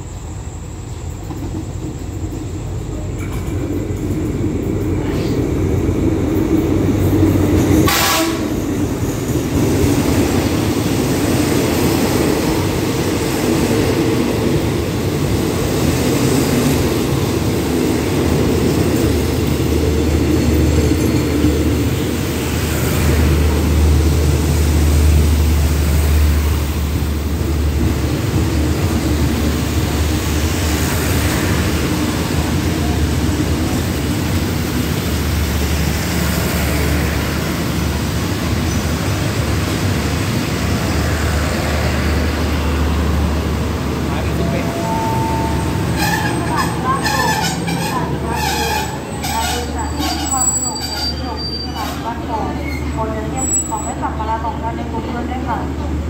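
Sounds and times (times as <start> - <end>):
locomotive rumbling past: 0.0 - 56.0
wheels clattering on rails: 1.2 - 5.4, 44.1 - 51.2.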